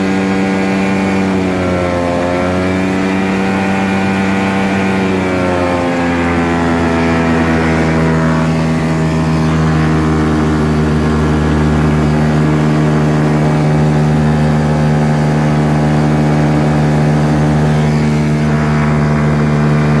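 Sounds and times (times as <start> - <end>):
light aircraft engine and propeller: 0.0 - 20.0.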